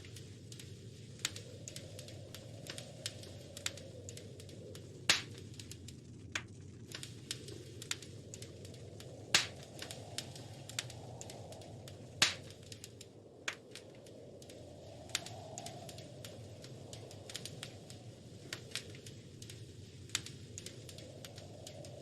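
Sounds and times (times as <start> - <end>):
low steady rush: 0.0 - 22.0
wood fire crackling: 0.0 - 22.0.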